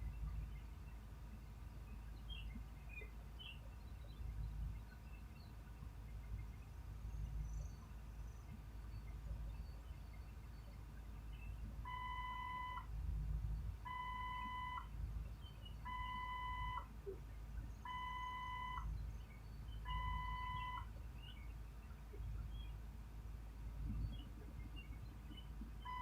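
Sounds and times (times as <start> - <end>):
steady low rumble: 0.0 - 26.0
electronic beeps: 11.9 - 12.9, 13.9 - 14.9, 15.9 - 16.9, 17.8 - 18.9, 19.8 - 20.9.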